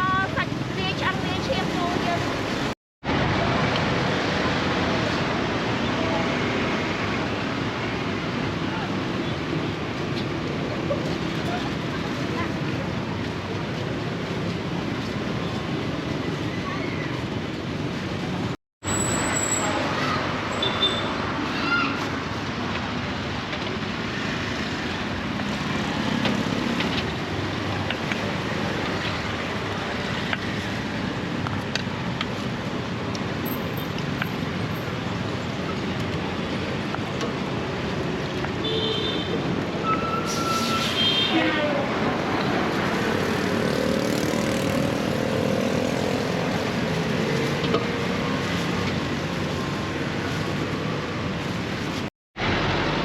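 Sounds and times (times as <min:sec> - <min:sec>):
busy street noise: 0:00.0 - 0:53.0.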